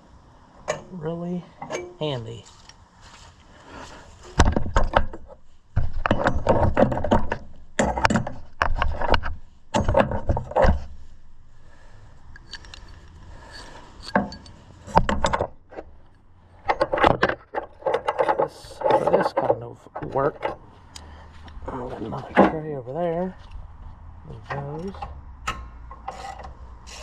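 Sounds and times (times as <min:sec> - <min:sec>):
metal tools and bolts clattering: 0:01.6 - 0:02.0, 0:12.4 - 0:15.8.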